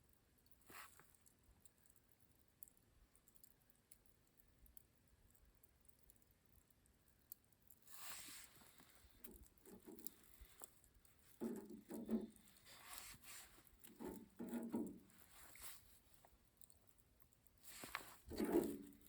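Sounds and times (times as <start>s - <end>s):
soft handling rustles and taps: 8.0s - 16.4s, 17.6s - 19.0s.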